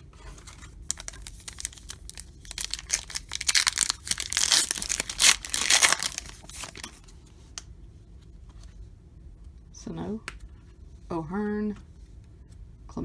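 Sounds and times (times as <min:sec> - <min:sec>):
foil wrapper crinkling: 0:00.4 - 0:07.1.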